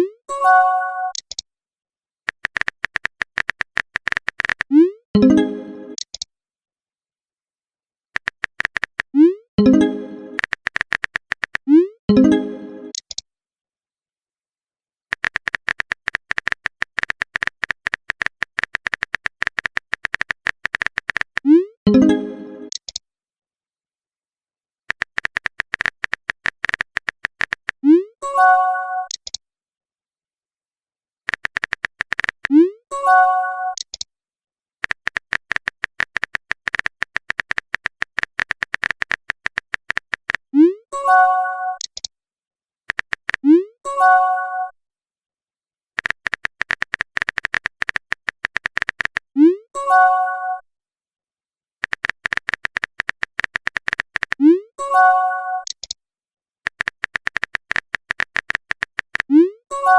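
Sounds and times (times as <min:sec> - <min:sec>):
message alert chime: 0:00.3 - 0:01.2, 0:05.2 - 0:06.0, 0:09.6 - 0:10.4, 0:12.1 - 0:12.9, 0:21.9 - 0:22.7
phone keyboard typing clicks: 0:01.1 - 0:01.4, 0:02.3 - 0:04.8, 0:05.9 - 0:06.3, 0:08.2 - 0:11.7, 0:12.9 - 0:13.2, 0:15.1 - 0:21.5, 0:22.6 - 0:23.0, 0:24.9 - 0:27.9, 0:29.0 - 0:29.4, 0:31.3 - 0:32.6, 0:33.7 - 0:34.1, 0:34.8 - 0:40.5, 0:41.7 - 0:42.1, 0:42.9 - 0:43.5, 0:46.0 - 0:49.3, 0:51.8 - 0:54.5, 0:55.6 - 0:56.0, 0:56.7 - 0:59.4
message chime: 0:05.2 - 0:06.0, 0:21.9 - 0:22.7.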